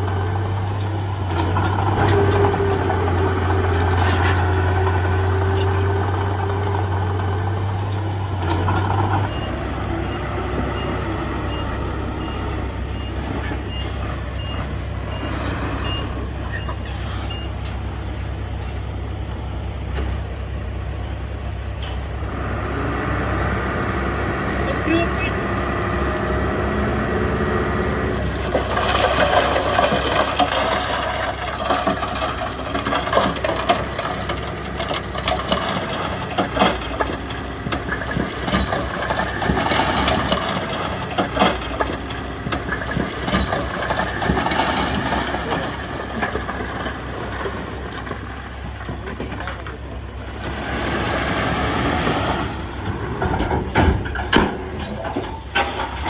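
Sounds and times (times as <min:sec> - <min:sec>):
diesel machinery running: 0:00.0 - 0:56.0
sharp knocks and rattles: 0:28.4 - 0:49.8, 0:52.3 - 0:56.0.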